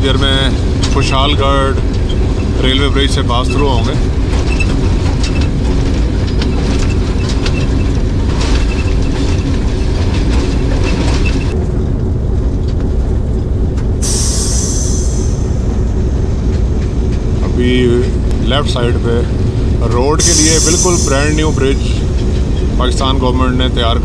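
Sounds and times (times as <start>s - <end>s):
train wheels rumbling on track: 0.0s - 24.0s
high hiss: 14.0s - 15.7s, 20.2s - 22.1s.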